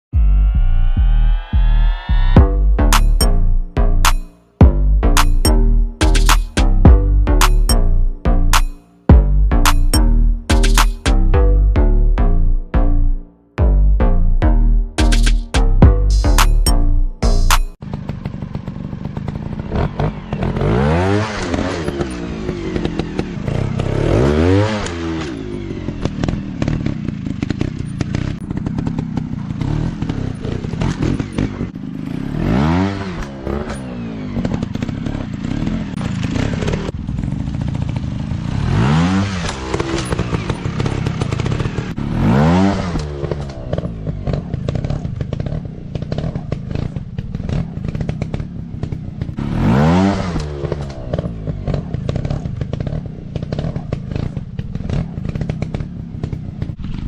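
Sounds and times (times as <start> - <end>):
dirt bike engines revving: 17.2 - 57.0.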